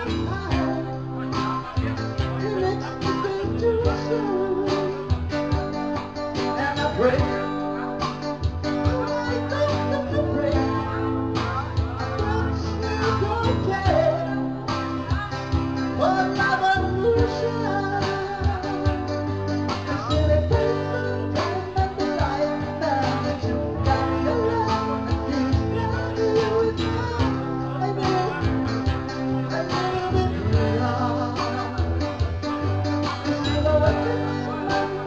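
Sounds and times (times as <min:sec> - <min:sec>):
guitar: 0:00.0 - 0:35.0
person singing: 0:00.0 - 0:35.0
steady drum beat: 0:04.8 - 0:10.8, 0:14.7 - 0:16.6.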